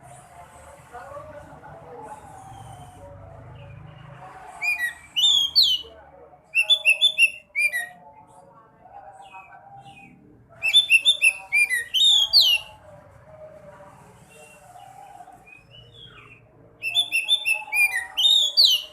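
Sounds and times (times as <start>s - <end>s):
songbird chirping and whistling: 2.2s - 3.8s, 4.6s - 5.9s, 6.6s - 8.0s, 9.2s - 12.8s, 14.4s - 18.9s.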